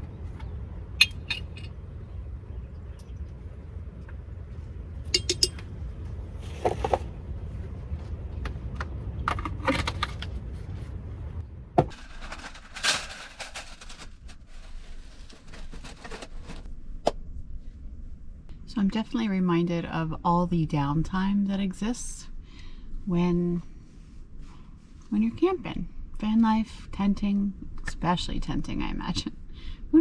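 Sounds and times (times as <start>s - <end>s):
low rumble: 0.0s - 15.4s.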